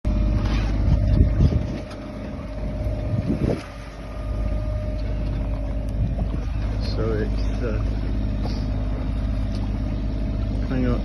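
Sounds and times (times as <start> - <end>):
boat engine running: 0.0 - 11.0
wind buffeting microphone: 0.8 - 7.4.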